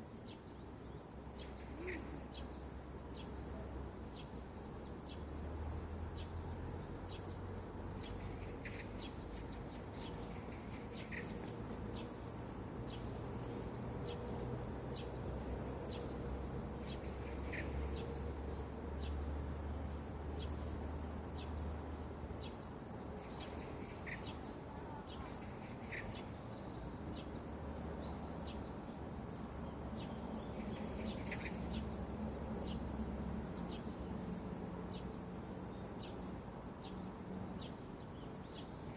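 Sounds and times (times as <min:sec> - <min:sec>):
lower bird calls: 0:00.2 - 0:03.5.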